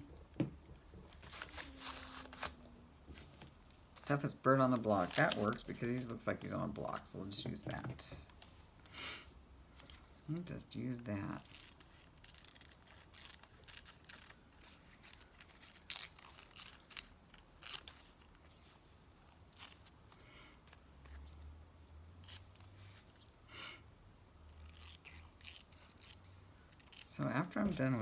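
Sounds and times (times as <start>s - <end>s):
scissors snipping paper: 24.5s - 27.3s.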